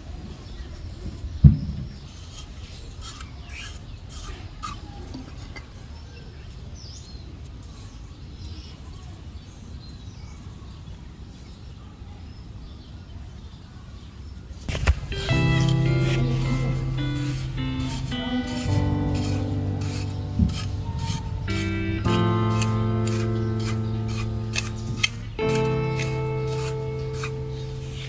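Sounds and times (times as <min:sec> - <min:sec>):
clicks: 0:14.7 - 0:19.5.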